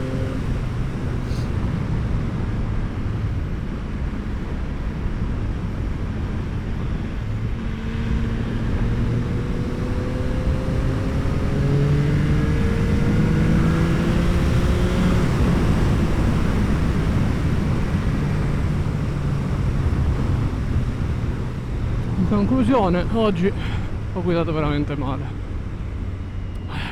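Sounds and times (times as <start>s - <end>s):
motorcycle engine revving: 0.0s - 1.6s, 7.2s - 22.1s
wind and road noise: 0.0s - 26.9s.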